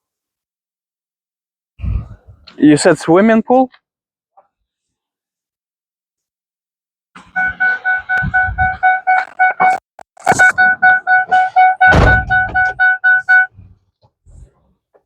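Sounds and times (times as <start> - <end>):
electronic alarm beeping: 7.2 - 13.5.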